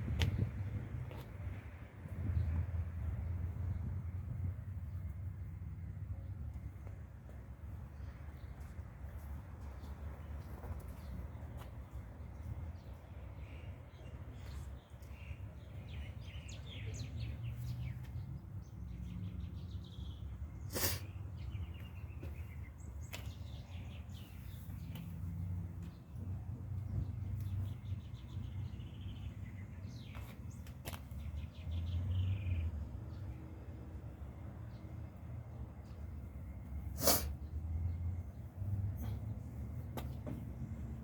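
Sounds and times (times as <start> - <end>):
small birds chirping: 7.8 - 33.4.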